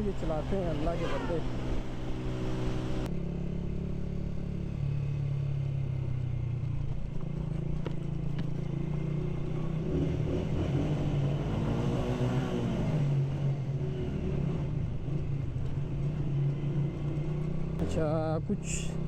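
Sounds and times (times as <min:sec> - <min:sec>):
passing vehicle engine: 0:00.0 - 0:03.2
motorcycle engine running: 0:00.0 - 0:19.0
road and wind noise: 0:00.0 - 0:19.0.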